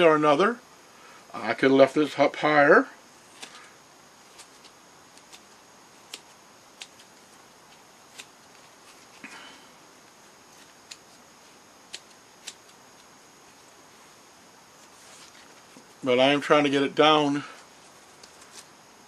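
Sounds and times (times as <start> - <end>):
scissors snipping foam: 4.3 - 9.1, 11.9 - 13.1.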